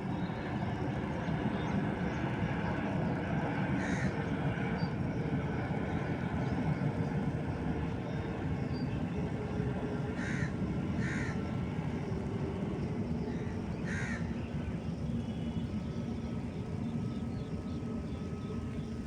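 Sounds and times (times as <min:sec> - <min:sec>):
crow cawing: 0:03.8 - 0:04.1, 0:10.2 - 0:11.4, 0:13.3 - 0:14.4.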